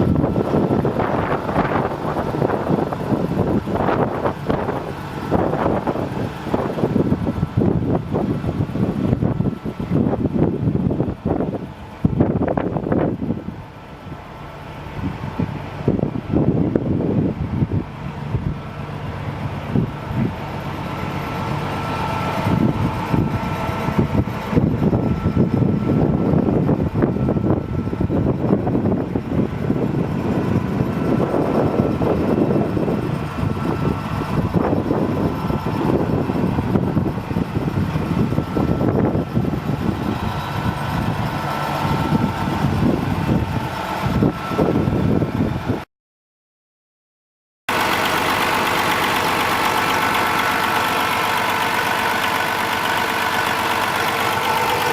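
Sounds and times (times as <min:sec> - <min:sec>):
diesel truck engine running: 0:00.0 - 0:45.9, 0:47.7 - 0:54.9.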